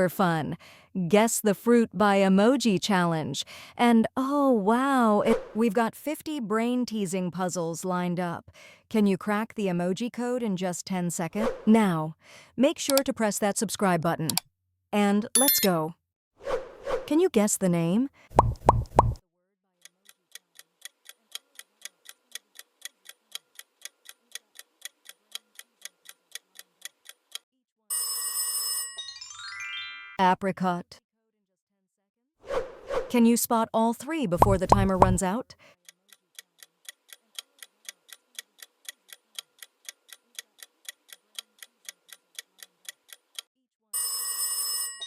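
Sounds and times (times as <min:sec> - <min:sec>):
clock ticking: 0:19.8 - 0:27.4, 0:34.4 - 0:43.5.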